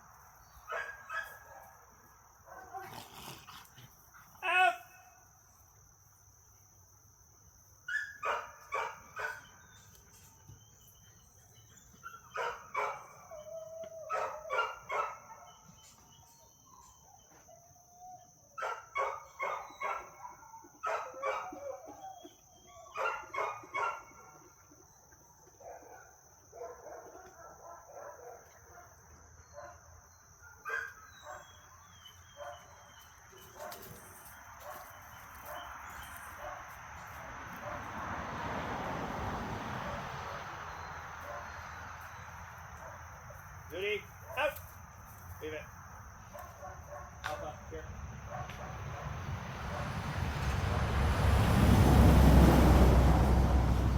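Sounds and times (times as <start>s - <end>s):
dogs barking: 0.6s - 1.8s, 2.5s - 3.7s, 7.9s - 9.6s, 11.9s - 15.8s, 18.5s - 24.7s, 25.4s - 34.0s, 34.6s - 38.0s, 39.8s - 44.6s, 46.2s - 50.9s
faint dog sounds: 2.5s - 5.2s.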